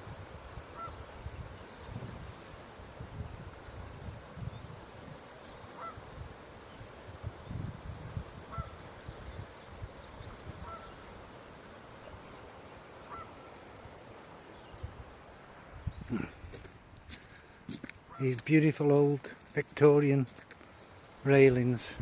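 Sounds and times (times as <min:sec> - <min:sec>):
small birds chirping: 0:00.3 - 0:21.8
geese honking: 0:00.7 - 0:01.1, 0:05.8 - 0:06.0, 0:08.5 - 0:08.8, 0:10.6 - 0:11.0, 0:13.0 - 0:13.5.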